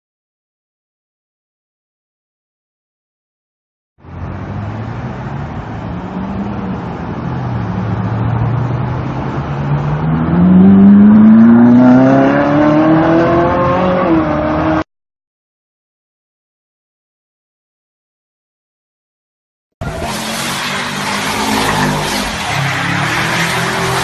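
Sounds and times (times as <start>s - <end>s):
car engine accelerating: 4.0s - 14.8s, 19.8s - 24.0s.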